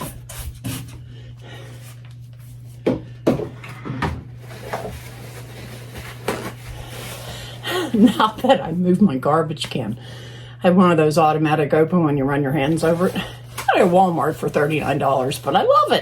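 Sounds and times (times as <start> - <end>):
steady low hum: 0.0 - 16.0
kitchen items knocking and clunking: 2.8 - 5.3.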